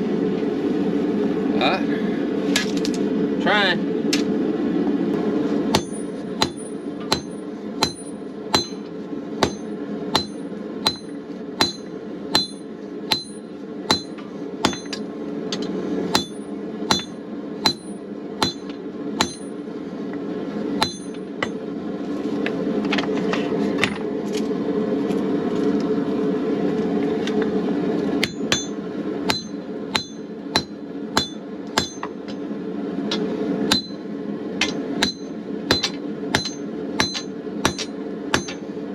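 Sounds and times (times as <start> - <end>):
gas forge burner rushing: 4.0 - 24.9, 25.8 - 38.9
hammer striking steel on anvil: 5.7 - 15.0, 15.6 - 19.6, 20.8 - 21.6, 28.2 - 32.4, 33.1 - 34.0, 34.6 - 38.7.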